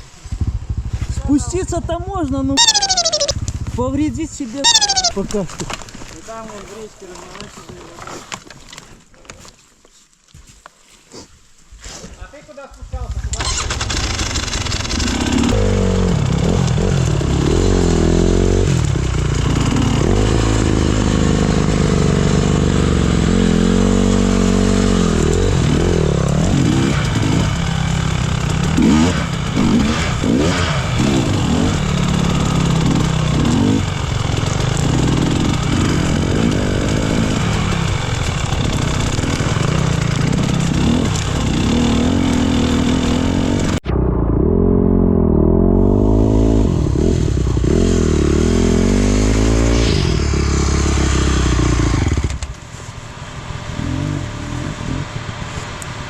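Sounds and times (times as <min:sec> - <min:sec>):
motorcycle engine revving: 0:00.0 - 0:07.5, 0:12.8 - 0:56.0.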